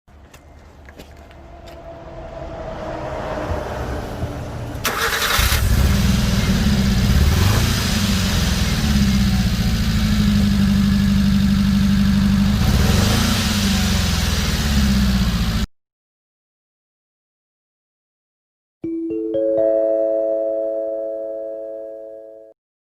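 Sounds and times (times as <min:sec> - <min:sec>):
car engine starting: 0:02.2 - 0:15.7
engine idling with misfire: 0:04.8 - 0:15.6.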